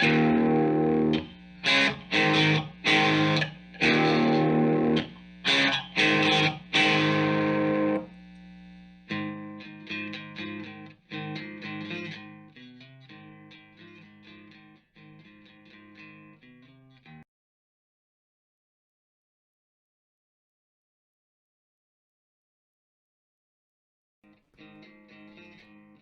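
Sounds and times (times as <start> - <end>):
distorted electric guitar: 0.0 - 17.2, 24.3 - 26.0.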